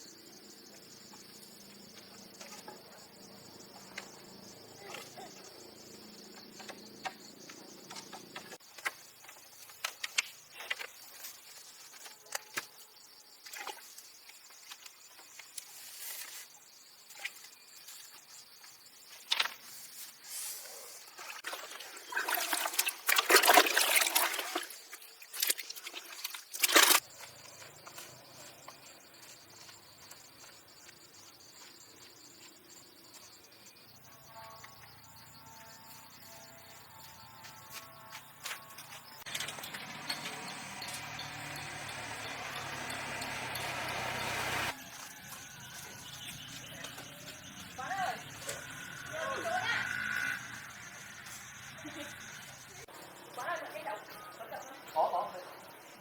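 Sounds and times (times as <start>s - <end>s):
crickets chirping: 0.0s - 56.0s
water pouring and splashing: 21.1s - 27.0s.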